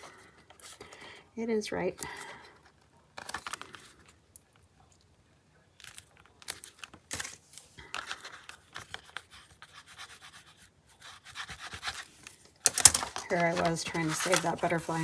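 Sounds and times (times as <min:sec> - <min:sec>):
paper pages rustling: 0:02.0 - 0:04.2, 0:05.8 - 0:15.0.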